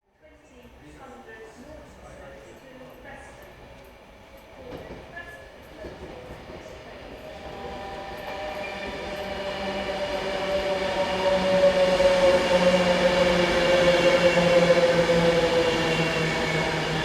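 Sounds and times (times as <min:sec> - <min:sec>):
train approaching with whine: 0:05.8 - 0:17.0.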